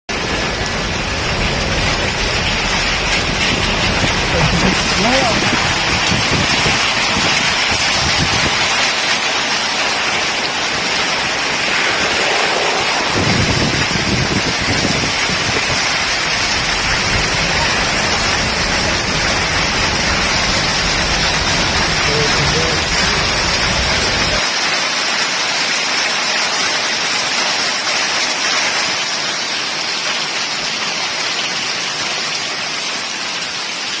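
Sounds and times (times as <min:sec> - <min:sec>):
heavy rain pouring: 0:00.1 - 0:34.0
low rumble: 0:00.2 - 0:08.4, 0:11.0 - 0:24.4.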